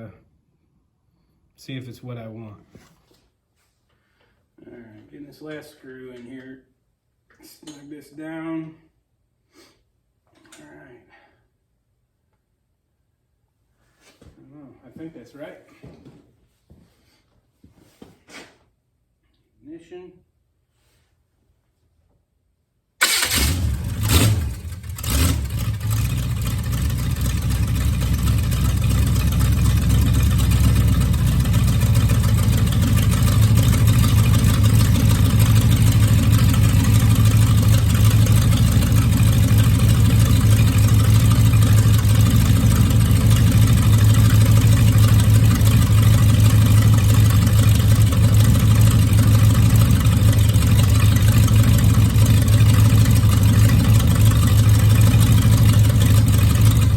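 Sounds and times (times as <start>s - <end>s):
engine starting and idling: 23.0s - 56.9s.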